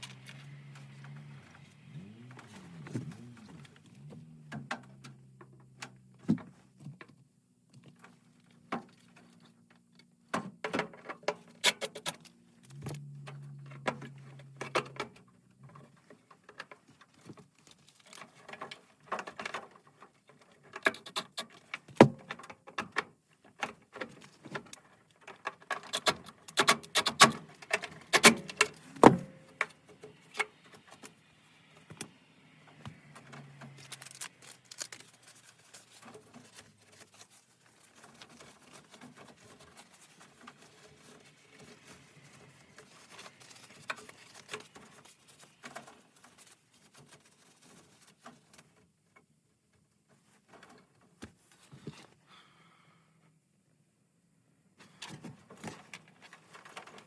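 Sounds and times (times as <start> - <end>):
tools and metal parts rattling: 33.0 - 48.7.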